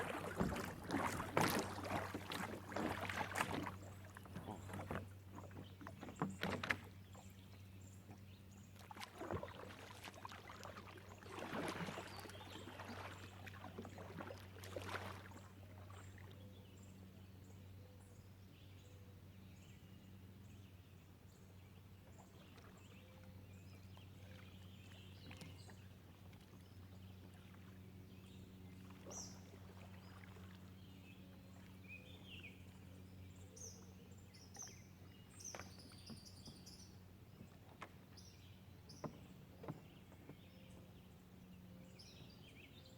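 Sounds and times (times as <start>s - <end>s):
water splashing: 0.0s - 6.9s, 8.8s - 16.0s.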